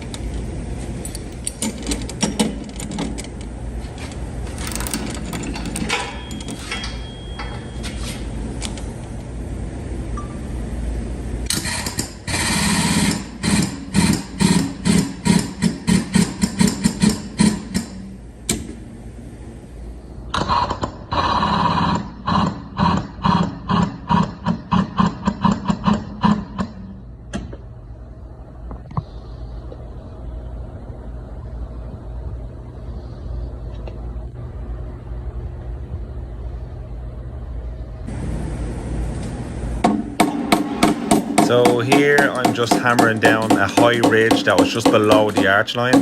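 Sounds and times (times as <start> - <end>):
steady low hum: 0.0 - 46.0
hammer tapping on steel panel: 39.8 - 46.0.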